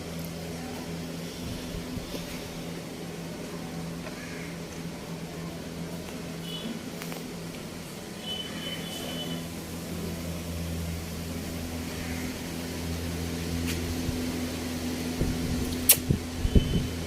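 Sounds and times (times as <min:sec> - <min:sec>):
low machine hum: 0:00.0 - 0:17.0
sharp click: 0:15.8 - 0:16.1.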